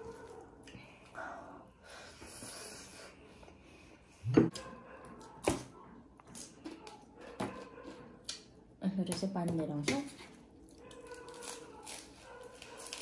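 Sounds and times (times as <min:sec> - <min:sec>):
crisp crunches: 0:10.7 - 0:13.0.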